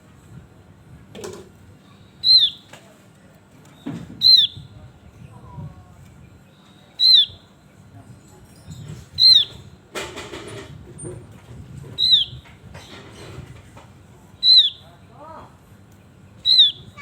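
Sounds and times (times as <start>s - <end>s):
sharp downslurred bird calls: 2.0s - 2.7s, 4.2s - 4.6s, 7.0s - 7.5s, 9.2s - 9.6s, 12.0s - 12.5s, 14.4s - 14.9s, 16.4s - 17.0s.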